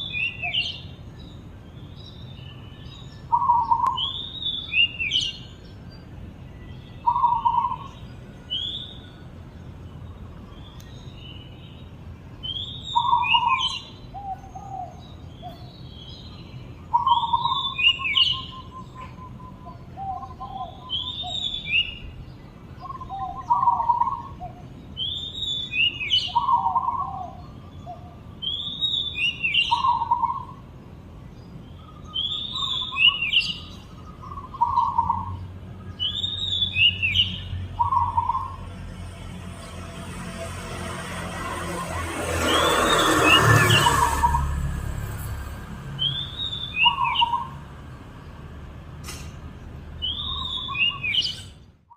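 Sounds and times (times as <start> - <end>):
dove singing: 0.0 - 30.7, 31.4 - 44.9, 45.8 - 48.4, 50.0 - 51.7
magpie-robin singing: 0.0 - 30.7, 31.3 - 38.6, 46.0 - 47.6, 50.0 - 51.7.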